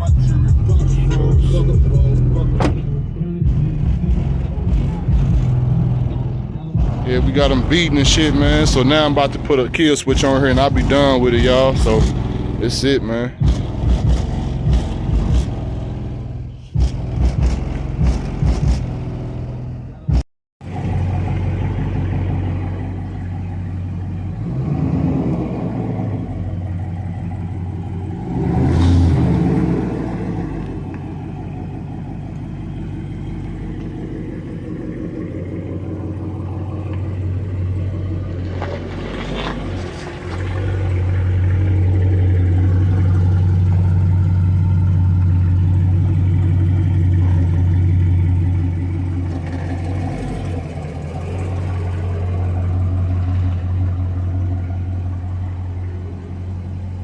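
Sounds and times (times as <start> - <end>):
bass-heavy music from subwoofers: 0.0 - 20.2.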